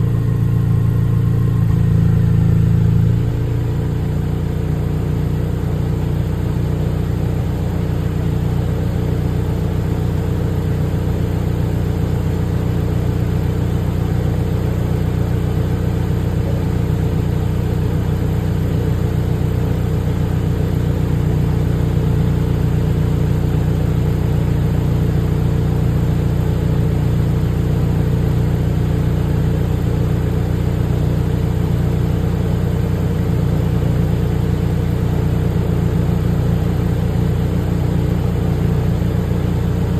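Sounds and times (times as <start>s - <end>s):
car engine running steadily: 0.0s - 39.9s.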